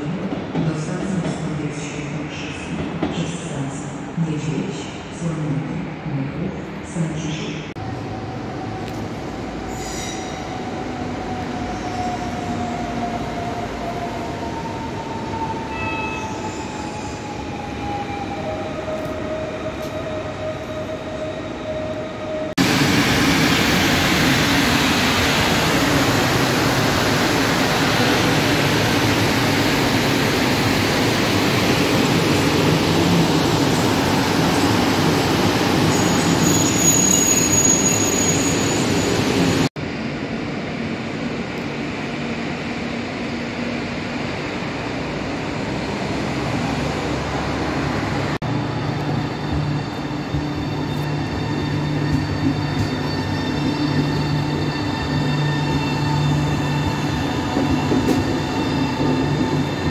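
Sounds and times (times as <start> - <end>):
wheel squeal tones: 35.8 - 39.7, 48.8 - 59.9
electric locomotive passing: 41.6 - 59.9.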